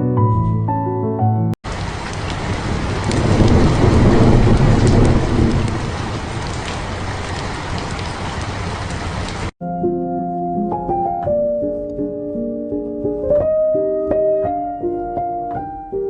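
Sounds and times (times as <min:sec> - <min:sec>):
heavy rain: 0:01.6 - 0:09.5
thunder rumble: 0:01.7 - 0:09.5.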